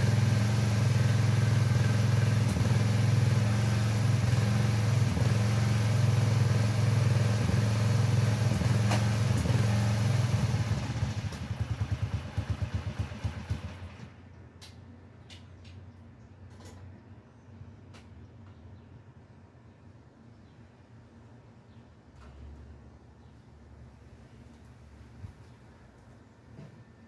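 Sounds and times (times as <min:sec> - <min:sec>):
garden tractor engine running: 0:00.0 - 0:14.7.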